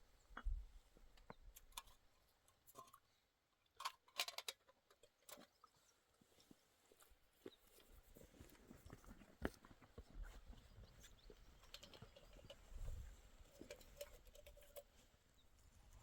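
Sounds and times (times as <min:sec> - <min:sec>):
faint clicks and knocks: 0:11.2 - 0:15.0.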